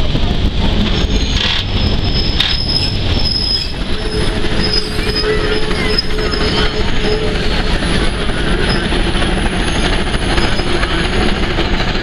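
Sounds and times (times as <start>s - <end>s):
rumble of wheels on rail: 0.0s - 12.0s
wheel flanges squealing: 0.7s - 11.9s
steady low tone: 3.7s - 9.6s.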